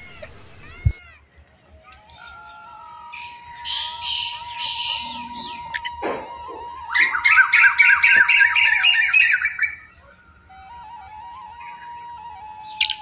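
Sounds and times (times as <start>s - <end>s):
rapid chattering bird calls: 0.0s - 10.4s
bird squawking: 0.0s - 13.0s.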